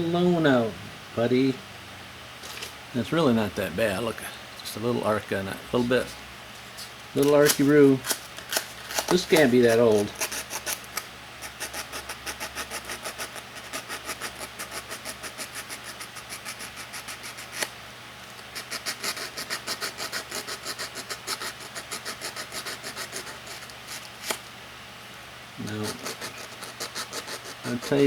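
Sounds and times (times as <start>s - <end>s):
rhythmic rubbing strokes: 25.6s - 28.0s.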